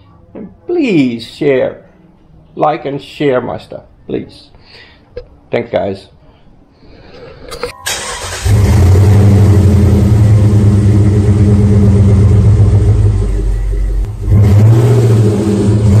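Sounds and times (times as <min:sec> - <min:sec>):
loud car engine running: 0:08.4 - 0:16.0.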